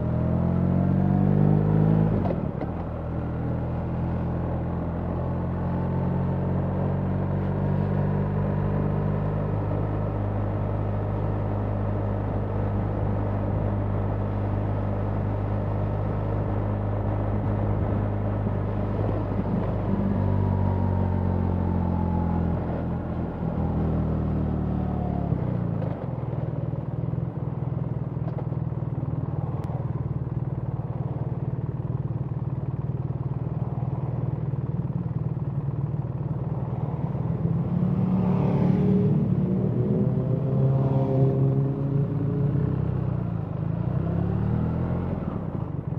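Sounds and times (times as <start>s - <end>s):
motorcycle engine running: 25.9s - 38.0s.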